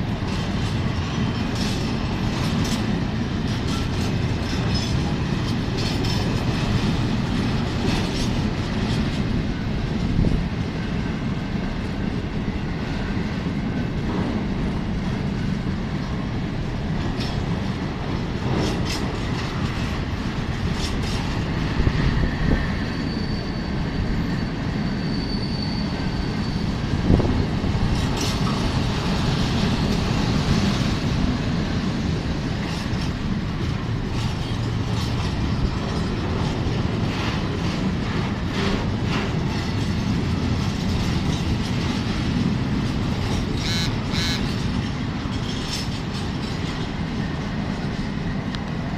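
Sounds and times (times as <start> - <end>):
wheels clacking over rail joints: 0.0 - 23.2, 25.8 - 48.9
freight train wheels rumbling: 0.0 - 48.9
high wheel squeal: 22.1 - 27.2.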